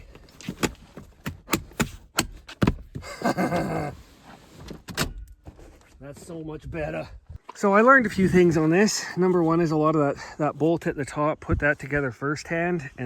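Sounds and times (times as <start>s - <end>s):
car seat parts knocking and clicking: 0.0s - 4.0s, 4.6s - 5.6s.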